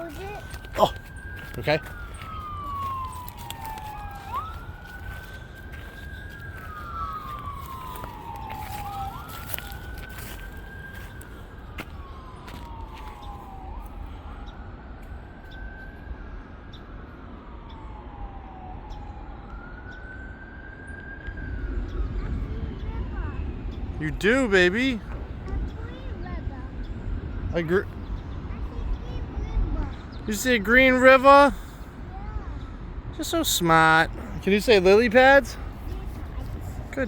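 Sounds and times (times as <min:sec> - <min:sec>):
emergency vehicle siren wailing: 0:00.0 - 0:37.0.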